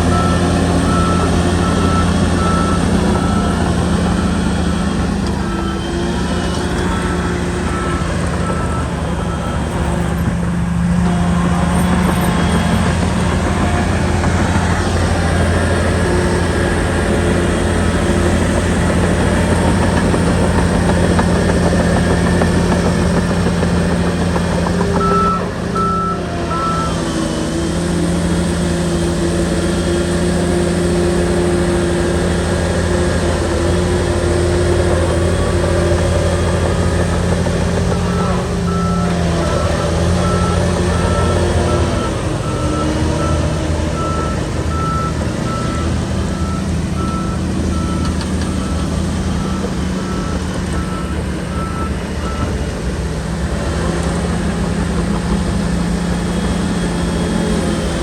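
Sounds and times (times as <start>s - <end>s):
reversing alarm beeping: 0.0s - 27.5s, 34.5s - 52.7s
bulldozer diesel engine running: 0.0s - 58.0s.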